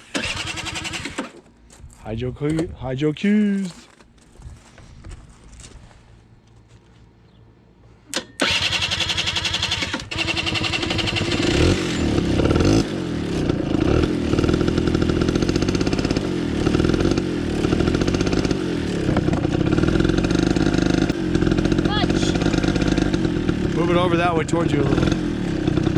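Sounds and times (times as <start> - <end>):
dirt bike engine revving: 8.4 - 25.9.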